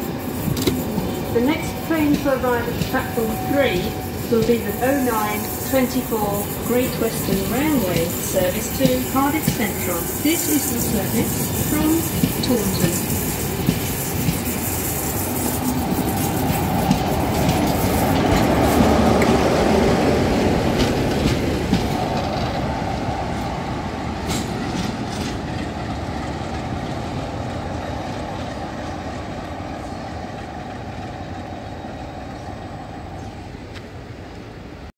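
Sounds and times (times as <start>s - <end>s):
train wheels clicking and rumbling: 0.0s - 31.6s.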